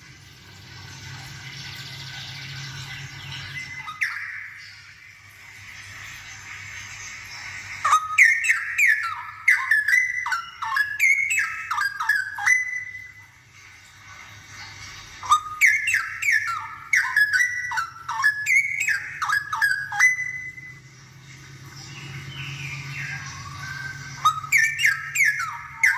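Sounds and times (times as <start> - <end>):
bulbul singing whistled notes: 3.0 - 5.0, 7.8 - 13.4, 15.2 - 20.9, 22.0 - 25.9.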